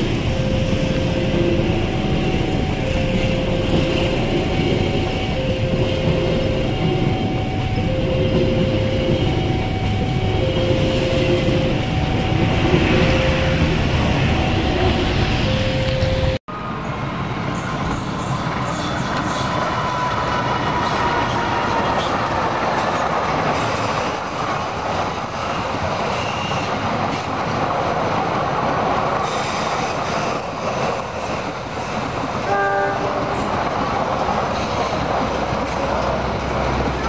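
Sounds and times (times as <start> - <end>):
train wheels rumbling and clattering: 0.0 - 37.0
train horn toot: 32.4 - 33.6.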